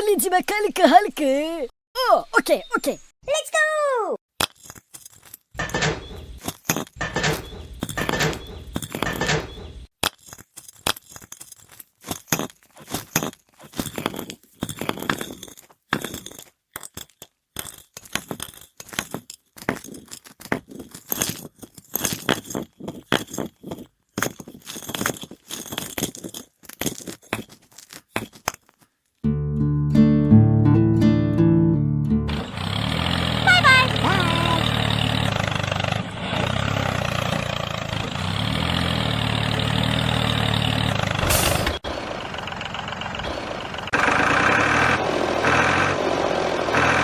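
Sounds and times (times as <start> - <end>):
small hard objects clinking: 4.4 - 9.2, 10.0 - 29.2
rustling and grinding noise: 4.6 - 29.2.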